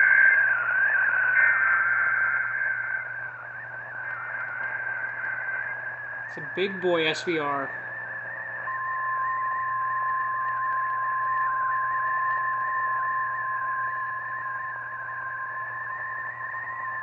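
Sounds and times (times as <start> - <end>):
low hum: 0.0 - 17.0
radio hiss: 0.0 - 17.0
steady alarm beep: 0.0 - 17.0.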